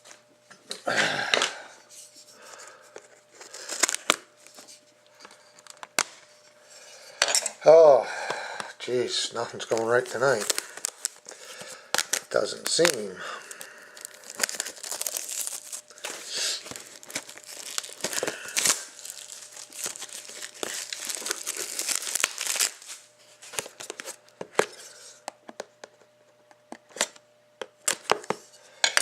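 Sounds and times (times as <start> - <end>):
plastic wrapping tearing and crinkling: 3.4 - 4.6, 9.4 - 24.8.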